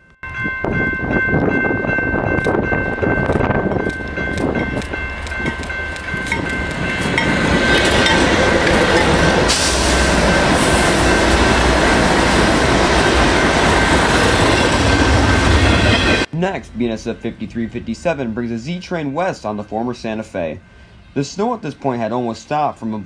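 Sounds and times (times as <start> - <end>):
high ringing tones: 0.0 - 12.1
freight train passing: 0.0 - 23.0.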